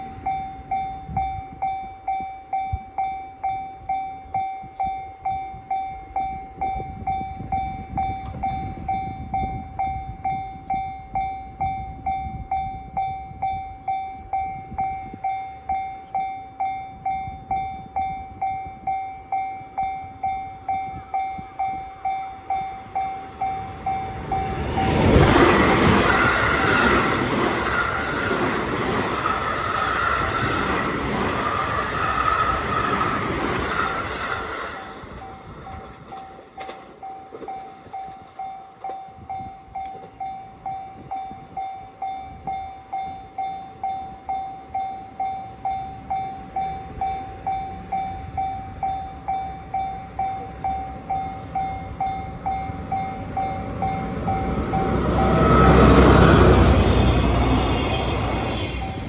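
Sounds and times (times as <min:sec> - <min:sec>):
level-crossing warning bell: 0:00.0 - 0:59.0
diesel locomotive passing: 0:19.1 - 0:38.8, 0:45.1 - 0:59.0.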